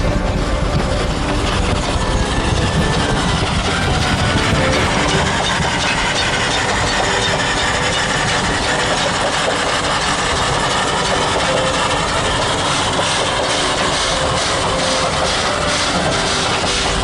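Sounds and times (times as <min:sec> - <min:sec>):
steam locomotive rushing noise: 0:00.0 - 0:17.0.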